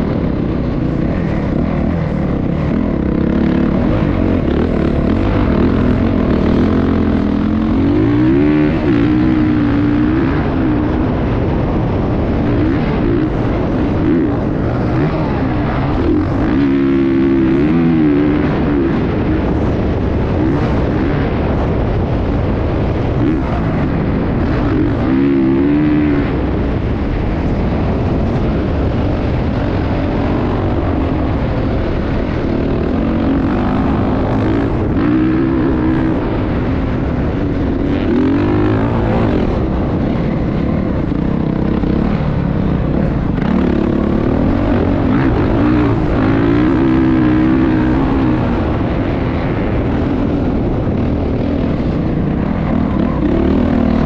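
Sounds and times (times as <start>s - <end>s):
constant rumbling noise: 0.0s - 54.0s
dirt bike engines revving: 0.0s - 54.0s.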